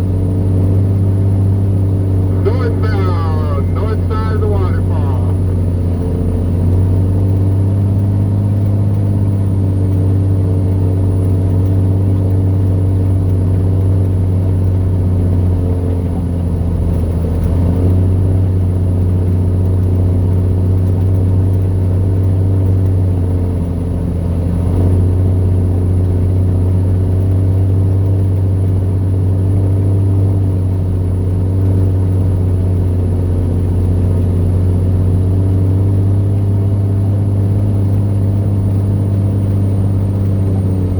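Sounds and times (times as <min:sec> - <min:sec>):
faint high whine: 0:02.2 - 0:05.6.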